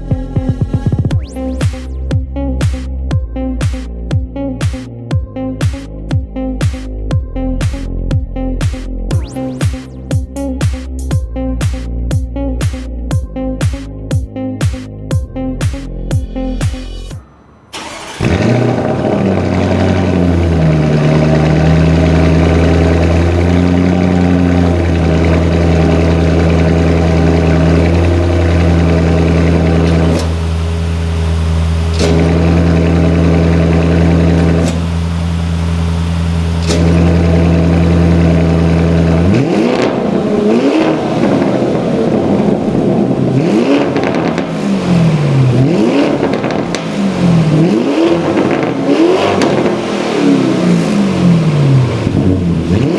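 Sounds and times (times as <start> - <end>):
car engine idling and revving: 16.3 - 52.9.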